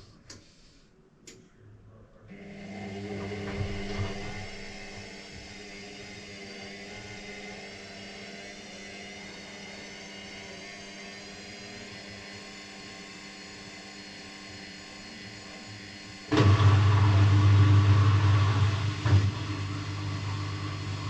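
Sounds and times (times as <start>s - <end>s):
washing machine humming: 2.3s - 7.4s, 16.3s - 21.0s.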